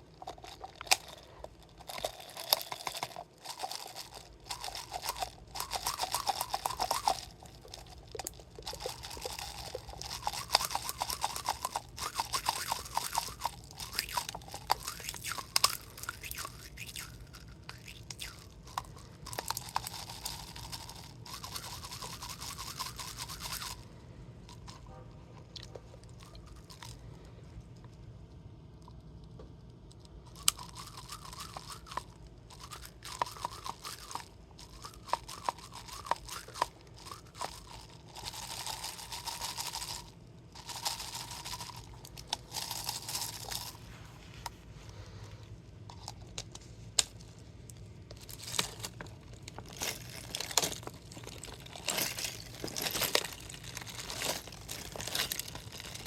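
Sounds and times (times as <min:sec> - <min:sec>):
ice crunching in bottle: 0:00.0 - 0:23.8, 0:48.1 - 0:56.0
plastic bottle crinkling: 0:00.0 - 0:23.8, 0:45.8 - 0:56.0.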